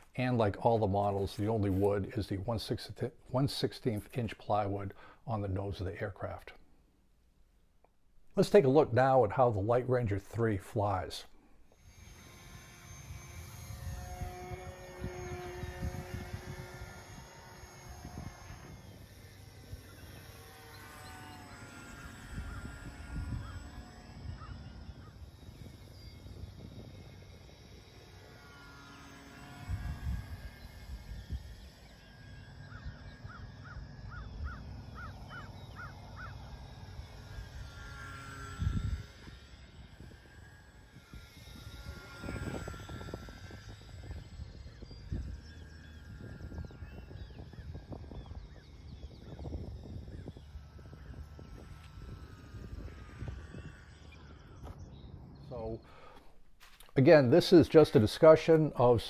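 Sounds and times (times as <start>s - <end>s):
model plane motor buzzing: 11.6s - 56.9s
wind rumbling on microphone: 13.0s - 20.3s, 21.9s - 28.4s, 29.6s - 31.8s, 32.6s - 55.8s
bird calling: 19.2s - 27.3s, 31.2s - 38.6s.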